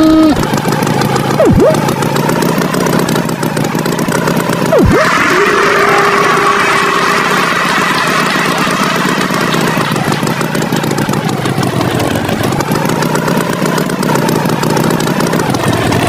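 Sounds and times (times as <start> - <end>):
cartoon tractor engine chugging: 0.0 - 16.0.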